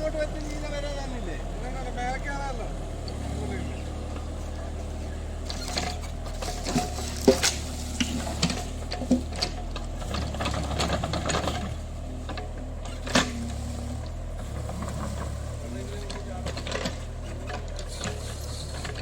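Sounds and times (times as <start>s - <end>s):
excavator engine running: 0.0s - 19.0s
machine clanks and knocks: 4.1s - 19.0s.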